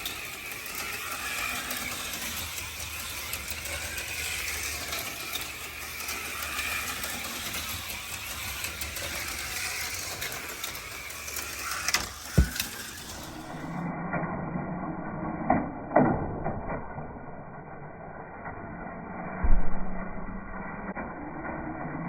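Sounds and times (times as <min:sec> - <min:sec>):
slot cars clicking and rattling: 0:00.0 - 0:13.4
slot car motors whining: 0:00.0 - 0:13.8
sharp knock: 0:12.4 - 0:12.7.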